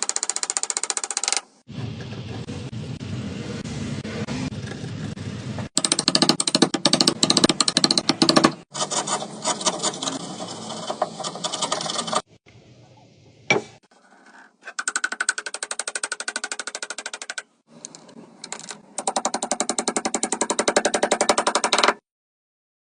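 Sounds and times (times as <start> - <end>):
fast mechanical rattle: 0.0 - 1.5, 5.7 - 12.3, 14.8 - 22.0.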